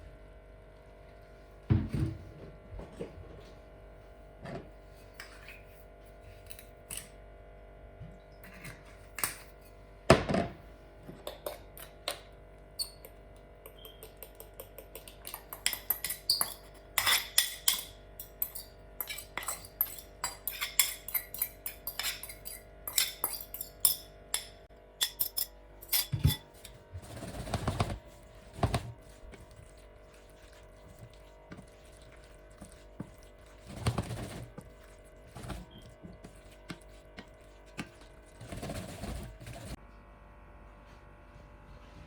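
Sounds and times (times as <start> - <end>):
dishes and cutlery clinking: 12.8 - 26.7.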